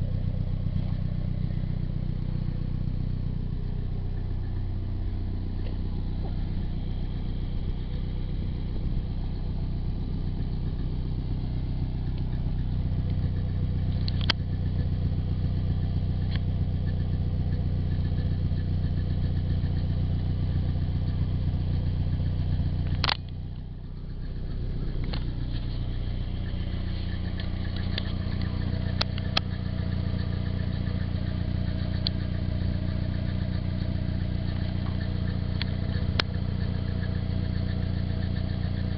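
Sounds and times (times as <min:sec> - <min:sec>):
car engine running with rattle: 0:00.0 - 0:38.9
sharp click: 0:14.0 - 0:14.4, 0:22.8 - 0:23.4.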